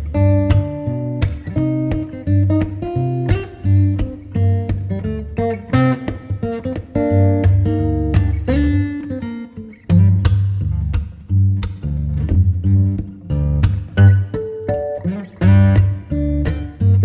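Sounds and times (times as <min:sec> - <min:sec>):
bass line: 0:00.0 - 0:06.4, 0:07.0 - 0:09.0, 0:09.9 - 0:14.4, 0:15.4 - 0:17.0
acoustic guitar music: 0:00.0 - 0:17.0.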